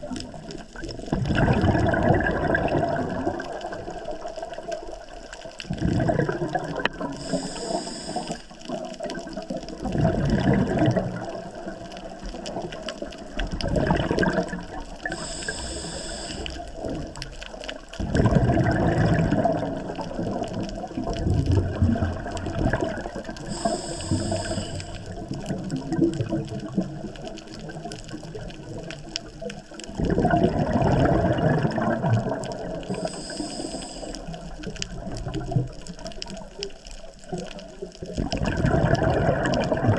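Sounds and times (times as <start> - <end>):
exhaled bubbles burbling: 0.0 - 39.9
regulator inhalation hiss: 7.2 - 8.6, 15.1 - 16.7, 23.5 - 25.1, 32.9 - 34.4.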